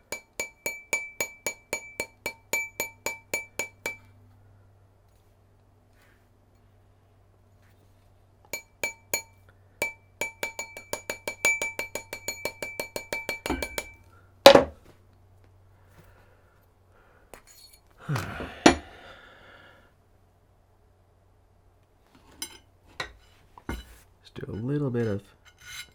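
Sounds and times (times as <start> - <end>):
small hammer tapping metal: 0.0 - 4.1, 8.6 - 14.6.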